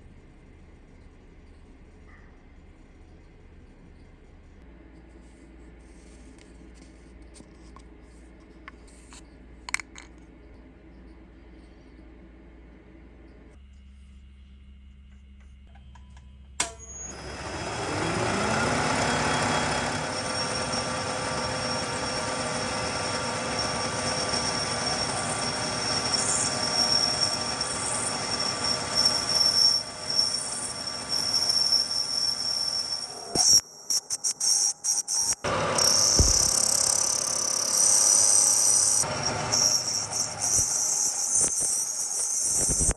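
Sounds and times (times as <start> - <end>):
steady low hum: 0.0 - 16.7
high-pitched cutting squeal: 16.7 - 42.9
machine tool running: 17.1 - 33.6, 35.1 - 42.9.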